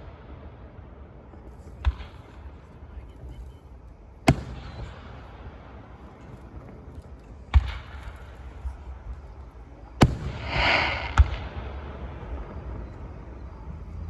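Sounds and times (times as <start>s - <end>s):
fireworks banging: 4.1s - 14.0s
firework hiss: 7.5s - 13.6s.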